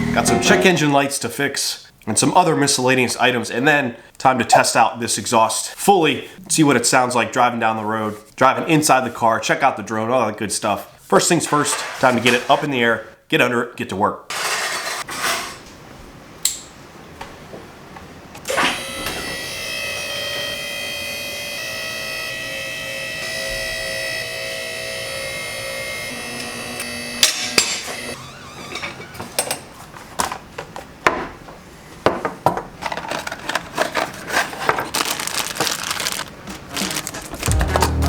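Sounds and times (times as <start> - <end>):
hydraulic pump motor whining: 21.0 - 28.9.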